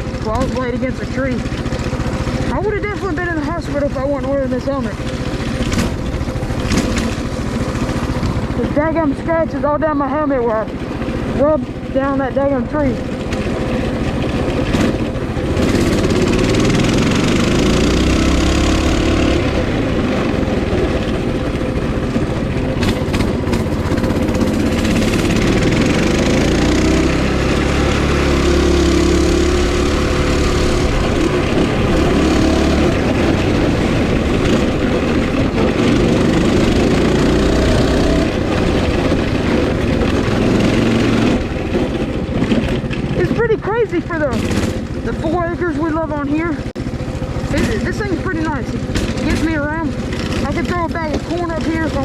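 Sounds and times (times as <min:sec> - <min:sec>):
mini bike engine revving: 0:00.0 - 0:52.0
broad rushing noise: 0:14.4 - 0:39.3.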